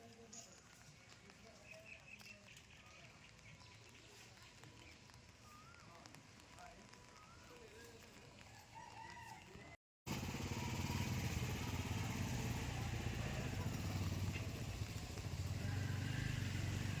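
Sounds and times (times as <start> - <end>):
small petrol engine running: 10.1 - 17.0.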